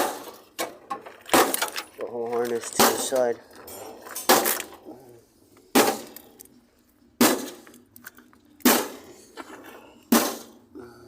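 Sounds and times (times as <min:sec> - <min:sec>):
metal clanking against metal: 0:00.0 - 0:04.8.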